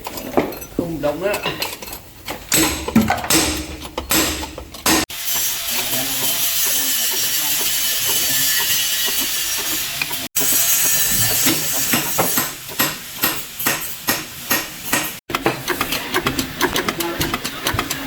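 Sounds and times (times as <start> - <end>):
tools knocking and clinking on metal: 0.0 - 5.1.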